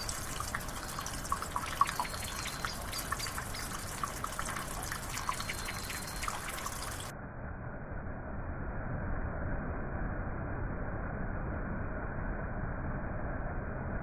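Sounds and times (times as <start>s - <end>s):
dull steady water rush: 0.0s - 7.1s
water trickling and dripping: 0.0s - 7.1s.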